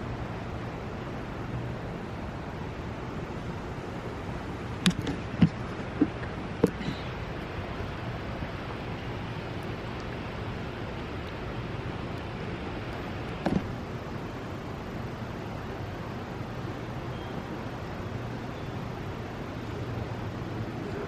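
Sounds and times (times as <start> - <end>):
background rush of indoor space: 0.0 - 21.0
soft knocks: 4.8 - 7.0, 13.4 - 13.7.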